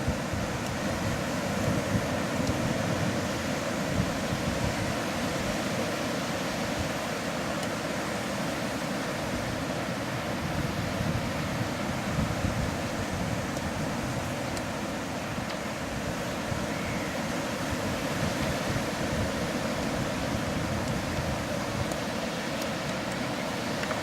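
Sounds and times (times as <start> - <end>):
wind buffeting microphone: 0.0 - 5.6, 10.4 - 22.2
sea surf on beach: 0.0 - 24.0.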